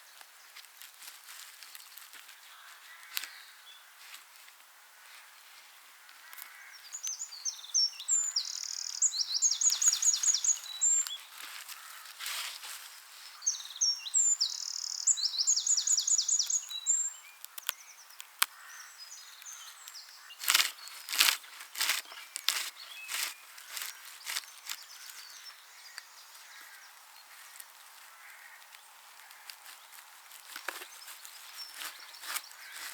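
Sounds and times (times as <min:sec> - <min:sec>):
dry crackling rustles: 0:00.1 - 0:03.4, 0:04.0 - 0:06.6, 0:09.6 - 0:13.5, 0:16.5 - 0:18.7, 0:19.4 - 0:32.9
songbird singing high notes: 0:07.0 - 0:11.1, 0:13.5 - 0:18.0.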